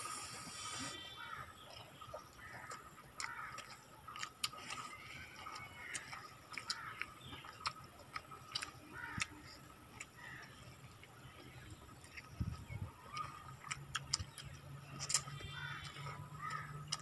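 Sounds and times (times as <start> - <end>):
people chewing food: 0.0 - 17.0
mouth clicks and lip smacks: 1.7 - 10.2, 12.1 - 17.0.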